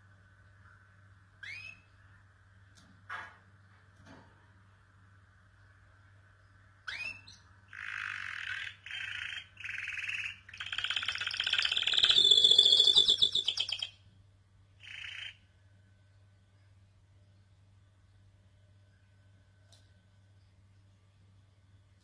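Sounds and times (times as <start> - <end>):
faint low hum: 0.0 - 22.0
canary singing: 1.4 - 2.0, 6.8 - 14.0, 14.8 - 15.5.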